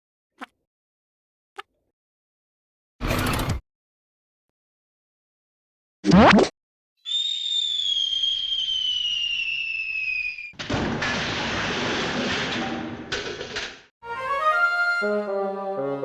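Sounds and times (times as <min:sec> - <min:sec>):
cartoon falling whistle: 0:07.0 - 0:10.6
loud crash-like burst: 0:10.6 - 0:13.2.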